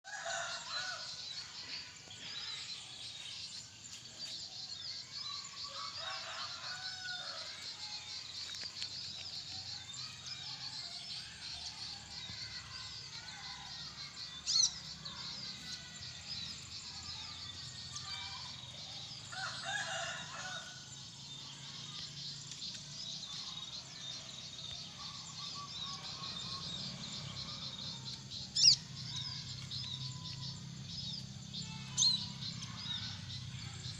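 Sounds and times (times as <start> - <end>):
birds chirping and twittering: 0.0 - 33.9.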